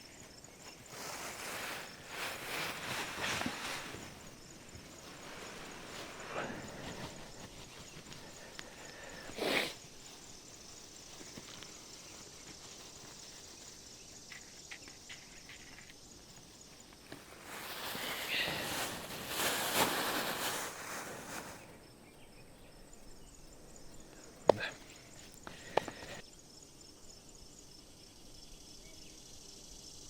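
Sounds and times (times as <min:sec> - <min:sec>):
rustling: 0:00.0 - 0:21.8
insects chirping: 0:00.0 - 0:30.0.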